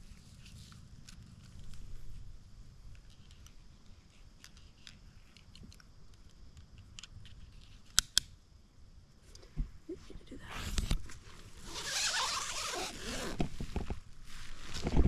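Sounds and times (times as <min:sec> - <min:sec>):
camping gear crackling: 0:00.0 - 0:06.3, 0:10.4 - 0:15.0.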